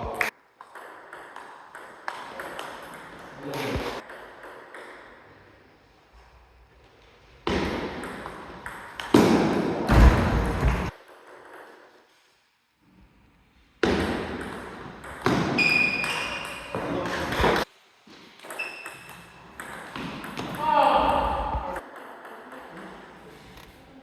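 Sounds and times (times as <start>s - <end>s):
table tennis ball hits: 0.1s - 5.2s, 7.4s - 12.0s, 13.8s - 17.7s, 18.4s - 22.9s.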